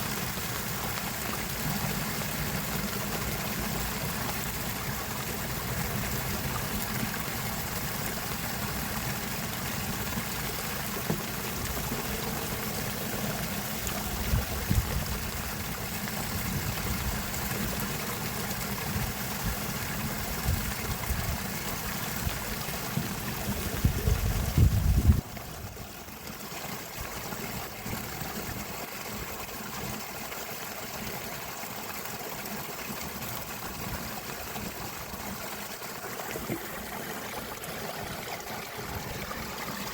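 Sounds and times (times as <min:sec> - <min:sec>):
rushing water: 0:00.0 - 0:39.9
low water rumble: 0:00.1 - 0:30.1.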